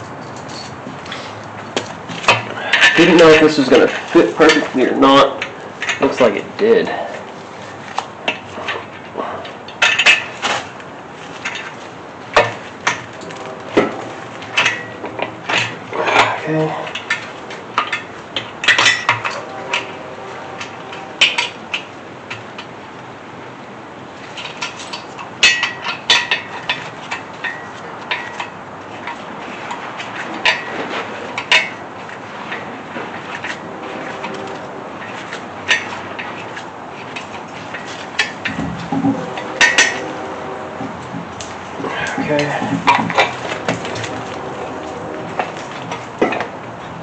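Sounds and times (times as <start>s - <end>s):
metal tools clinking: 0.0s - 1.2s
ringing metal clanks: 12.4s - 22.7s, 24.4s - 29.2s, 37.2s - 46.5s.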